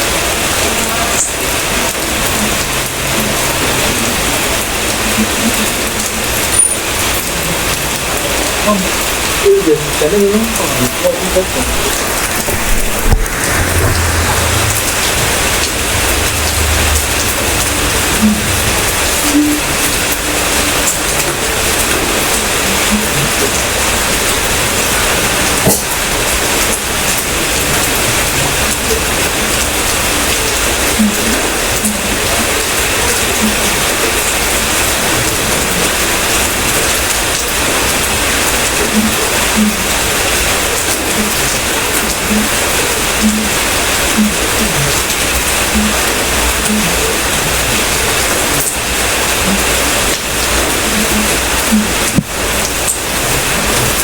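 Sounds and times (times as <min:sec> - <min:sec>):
heavy rain falling: 0:00.0 - 0:54.0
low rumble: 0:11.6 - 0:20.6.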